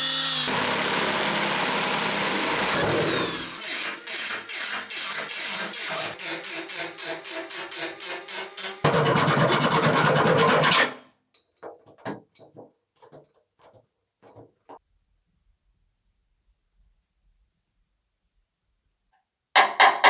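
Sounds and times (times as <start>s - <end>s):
loud steady tool noise: 0.0s - 10.8s.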